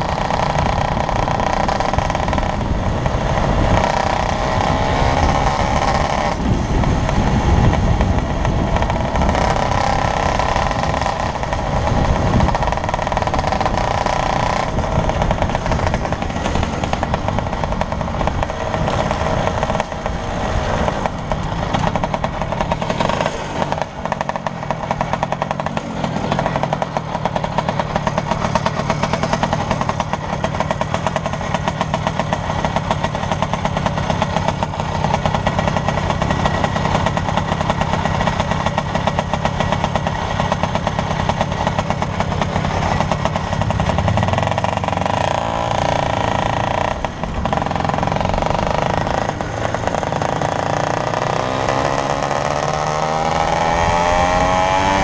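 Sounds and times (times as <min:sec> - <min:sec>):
wind noise on microphone: 0:00.0 - 0:23.2
scooter two-stroke engine running: 0:00.0 - 0:55.0.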